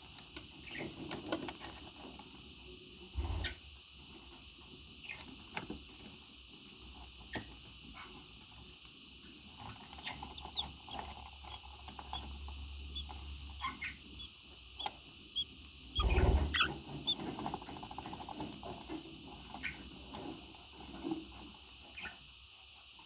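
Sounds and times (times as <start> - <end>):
parrot chirping and chattering: 10.0 - 17.2
rustling thump: 16.0 - 16.7.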